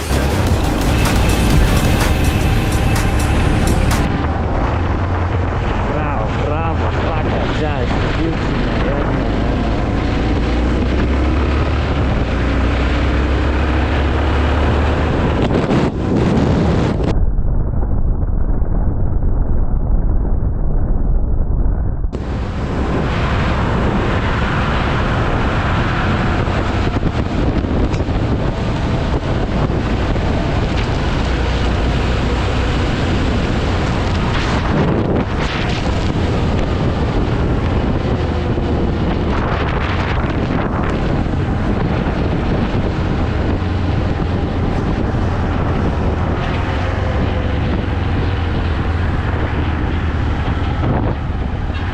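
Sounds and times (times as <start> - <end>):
motorcycle engine: 0.0 - 6.0
wind rushing over microphone: 0.0 - 51.9.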